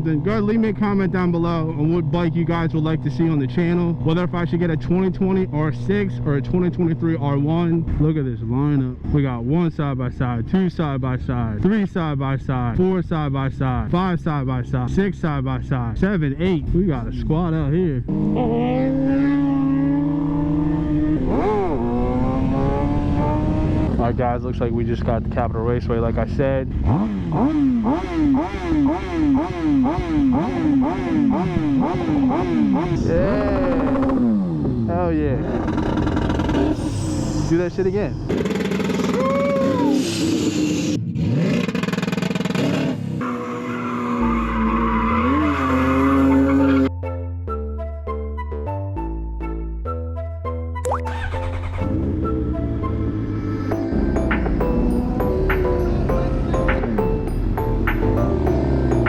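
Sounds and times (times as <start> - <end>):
motorcycle engine revving: 18.0 - 46.8, 51.1 - 54.5.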